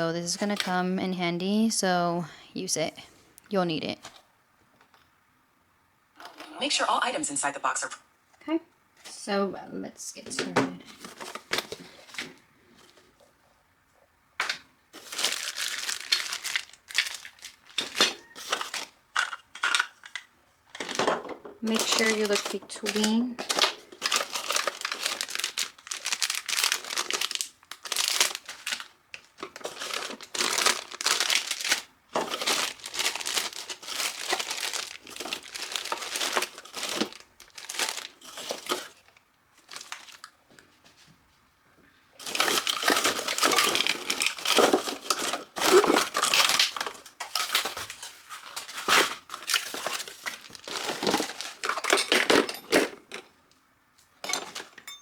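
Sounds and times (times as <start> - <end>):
plastic packaging crinkling: 0.0 - 0.8, 14.5 - 40.4, 42.2 - 53.1.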